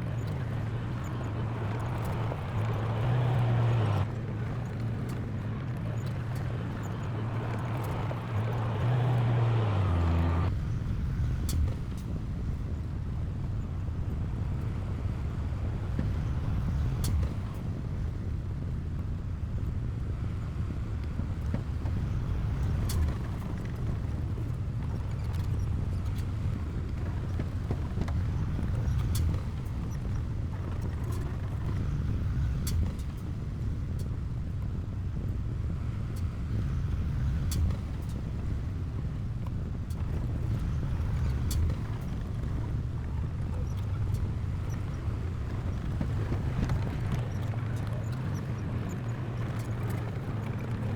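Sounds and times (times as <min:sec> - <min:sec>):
heavy machinery diesel engine: 0:00.0 - 0:11.8.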